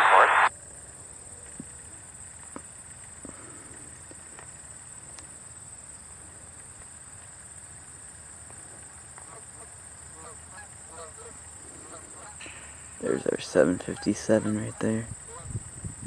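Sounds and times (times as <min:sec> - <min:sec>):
low background hum: 0:00.0 - 0:16.0
high-pitched insect drone: 0:01.7 - 0:16.0
faint clicks: 0:02.4 - 0:05.4.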